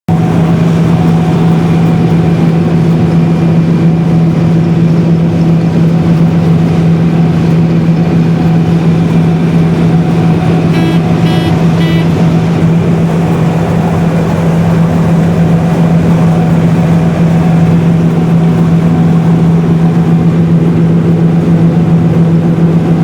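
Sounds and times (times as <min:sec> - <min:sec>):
combine harvester running: 0:00.1 - 0:23.0
short high beeps: 0:10.7 - 0:12.2.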